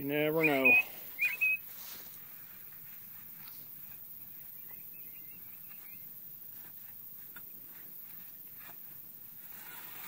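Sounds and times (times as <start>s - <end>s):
faint bird chirps: 0.2s - 1.7s, 4.3s - 6.2s.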